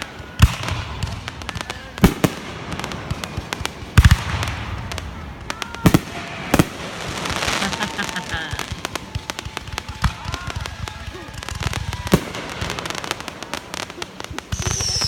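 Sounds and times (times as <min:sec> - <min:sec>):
fireworks bangs: 0:00.0 - 0:15.0
fireworks crackling: 0:00.0 - 0:15.0.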